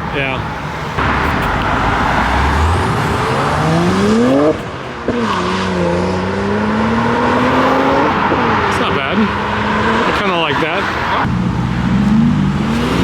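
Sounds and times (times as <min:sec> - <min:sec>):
car accelerating: 0:00.0 - 0:13.0.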